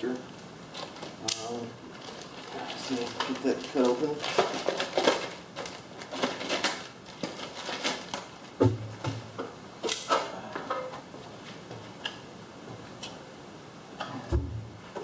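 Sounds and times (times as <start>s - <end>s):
package rustling: 0.7s - 8.6s.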